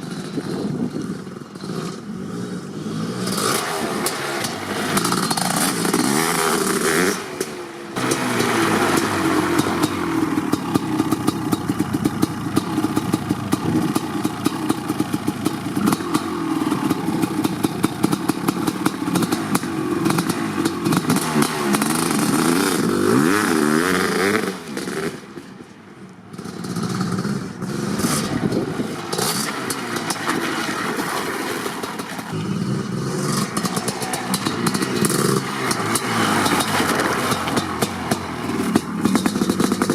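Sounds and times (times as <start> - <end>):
two-stroke motorcycle engine revving: 0.0 - 25.4, 26.3 - 39.9.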